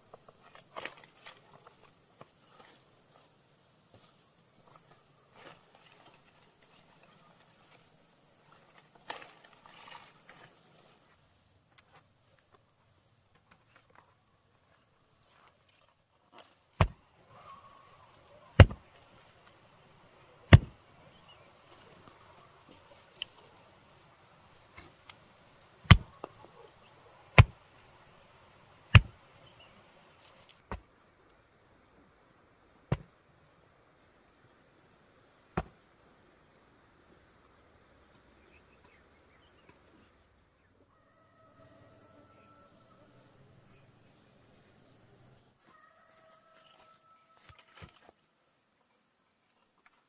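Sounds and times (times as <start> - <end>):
sharp tool strikes: 18.6 - 18.8, 20.5 - 20.8, 25.9 - 26.1, 27.4 - 27.6, 28.9 - 29.2.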